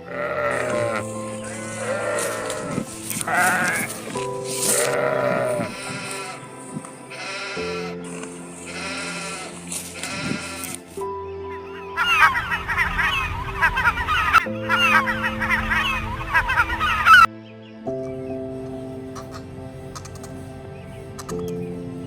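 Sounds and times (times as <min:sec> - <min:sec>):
sheep bleating: 0:00.0 - 0:06.5, 0:07.1 - 0:08.0, 0:08.6 - 0:10.8
background music with sustained tones: 0:00.0 - 0:22.0.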